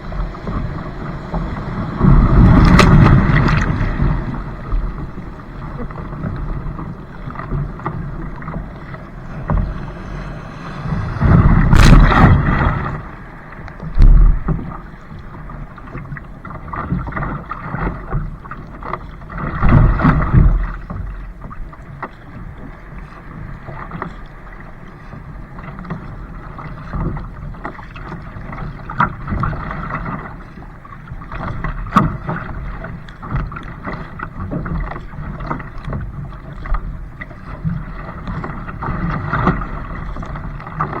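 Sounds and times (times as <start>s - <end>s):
water splashing around kayak: 0.0s - 41.0s
low thud: 2.0s - 5.0s, 8.4s - 14.8s.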